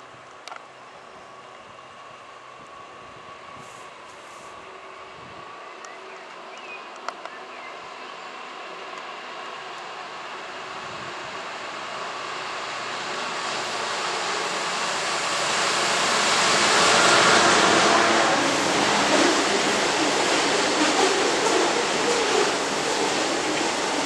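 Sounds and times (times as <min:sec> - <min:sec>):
diesel locomotive passing: 0:04.6 - 0:24.0
train wheels rattling on rails: 0:10.2 - 0:24.0.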